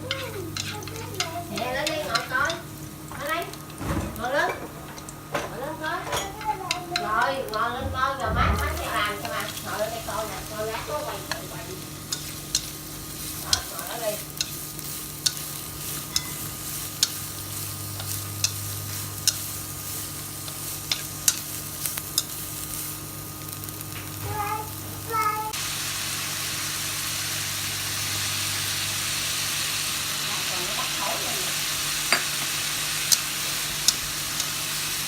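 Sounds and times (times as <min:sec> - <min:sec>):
utensil clicking against pan: 0:00.0 - 0:03.7, 0:06.2 - 0:07.8, 0:10.4 - 0:22.4, 0:33.1 - 0:34.6
food frying in a pan: 0:00.0 - 0:35.0.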